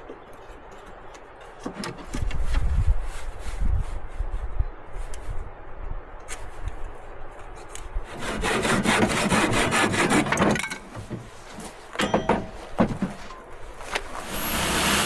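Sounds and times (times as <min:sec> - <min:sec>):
hand saw cutting wood: 0:08.1 - 0:10.6, 0:13.9 - 0:15.0.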